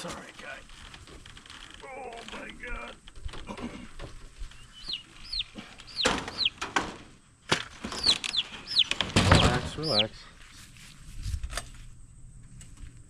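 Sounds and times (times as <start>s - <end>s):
turkey calling: 4.4s - 6.6s, 7.8s - 10.2s.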